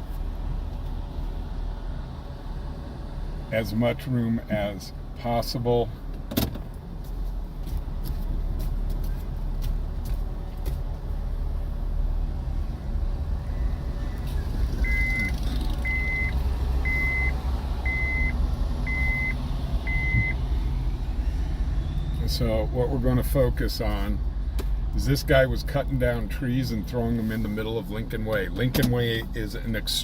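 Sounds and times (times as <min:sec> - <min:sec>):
vehicle engine rumble: 0:00.0 - 0:30.0
high reversing beeps: 0:13.4 - 0:22.4.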